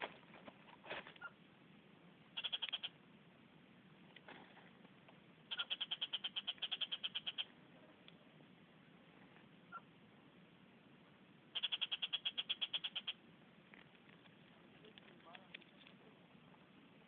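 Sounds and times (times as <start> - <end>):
bird calling high notes: 11.6 - 13.2.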